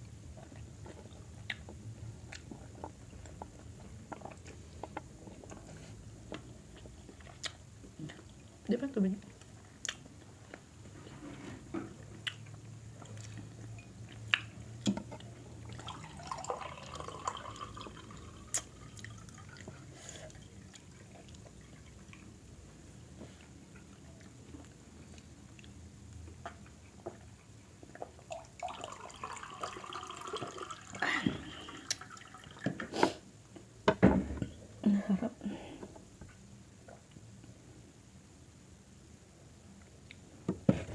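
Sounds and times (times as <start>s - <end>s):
water being poured: 15.6s - 21.0s, 28.3s - 32.7s.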